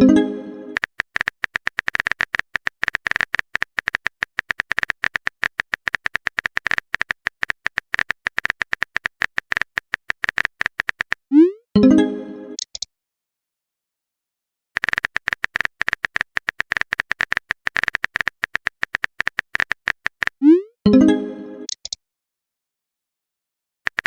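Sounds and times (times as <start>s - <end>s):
electronic typing clicks with beeps: 0.7s - 11.2s, 14.8s - 20.6s, 21.7s - 22.0s.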